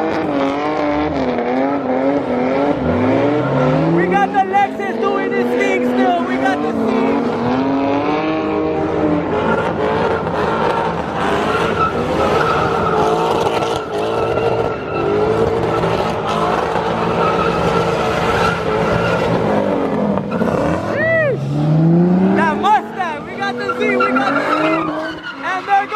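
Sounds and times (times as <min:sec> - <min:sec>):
car engine at high revs: 0:00.0 - 0:25.9
tyres squealing: 0:09.4 - 0:19.5, 0:22.4 - 0:25.9.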